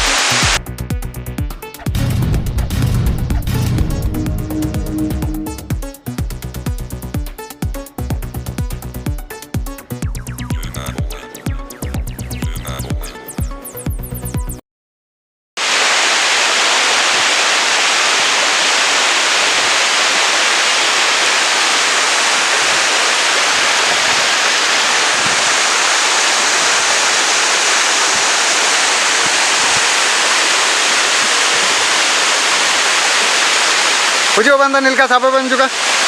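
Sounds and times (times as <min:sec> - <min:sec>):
waterfall rushing: 0:00.0 - 0:00.6, 0:15.6 - 0:36.0.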